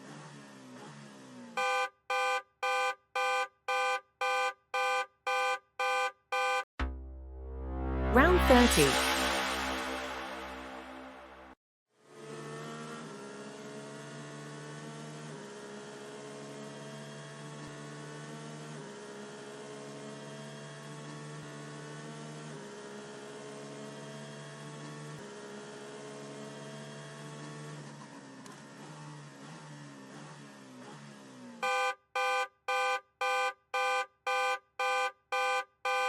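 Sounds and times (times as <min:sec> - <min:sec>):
layered electronic drone: 0:06.8 - 0:11.6.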